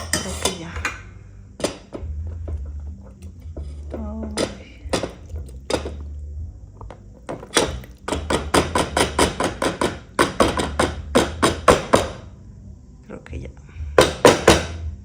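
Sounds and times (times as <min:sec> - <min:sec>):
metal utensil knocking on pot: 0:00.0 - 0:06.1, 0:06.8 - 0:12.2.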